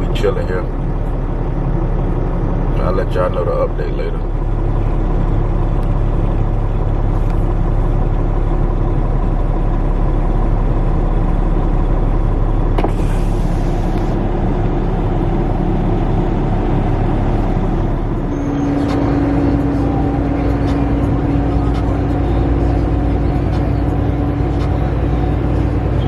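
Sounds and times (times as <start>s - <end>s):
diesel truck engine idling: 0.0s - 26.0s
brief air hiss: 12.8s - 14.1s.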